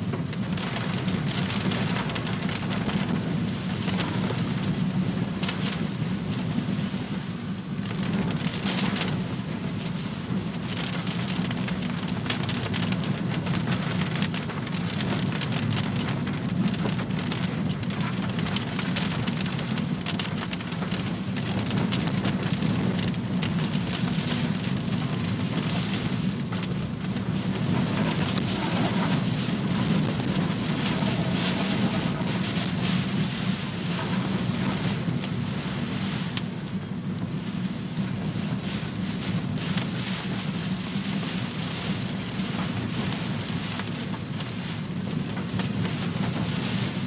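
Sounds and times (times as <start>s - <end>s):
heavy rain pattering: 0.0s - 47.0s.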